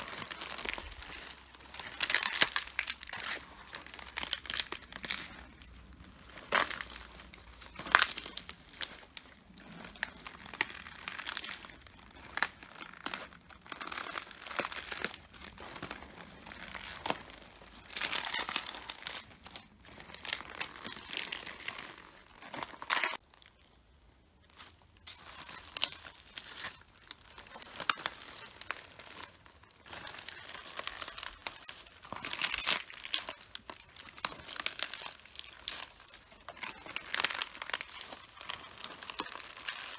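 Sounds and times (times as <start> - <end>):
leaves crunching underfoot: 0.0 - 12.1.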